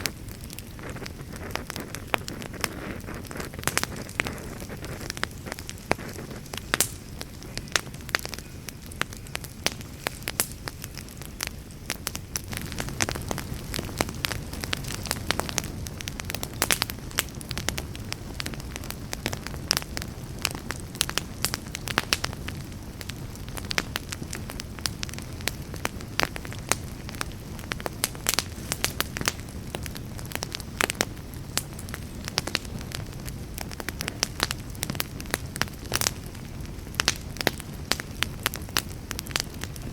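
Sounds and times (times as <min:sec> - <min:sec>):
fire crackling and popping: 0:00.0 - 0:39.9
low rumble of flames: 0:00.0 - 0:39.9.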